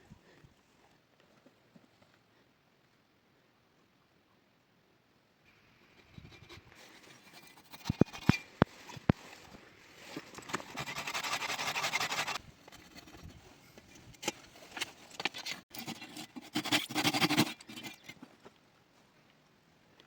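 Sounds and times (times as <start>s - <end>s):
scratchy scraping and rubbing: 5.8s - 9.4s, 10.0s - 18.3s.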